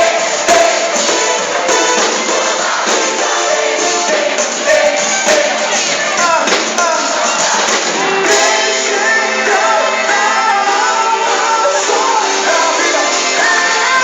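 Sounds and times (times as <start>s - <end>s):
live gospel pop band: 0.0s - 14.0s
person singing: 8.0s - 14.0s.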